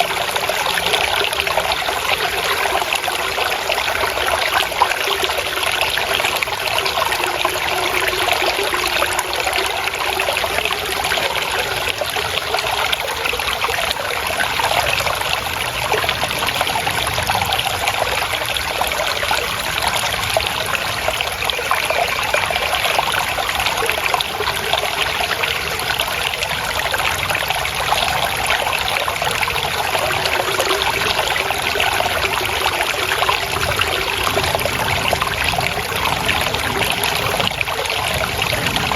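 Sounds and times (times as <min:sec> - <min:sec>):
water trickling over stones: 0:00.0 - 0:38.9.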